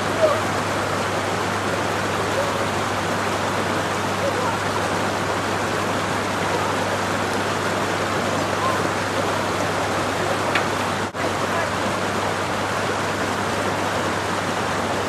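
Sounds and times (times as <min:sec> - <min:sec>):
water rushing through a watercourse: 0:00.0 - 0:15.0.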